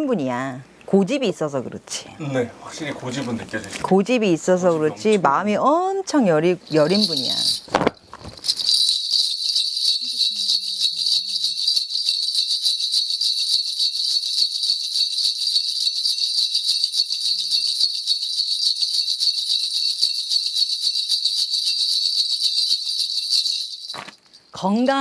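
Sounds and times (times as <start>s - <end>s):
ritual bells jingling: 6.4s - 25.0s.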